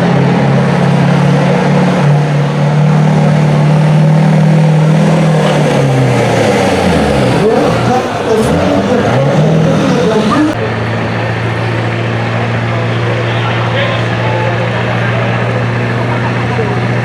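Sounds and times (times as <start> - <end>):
diesel truck engine under load: 0.0 - 10.6.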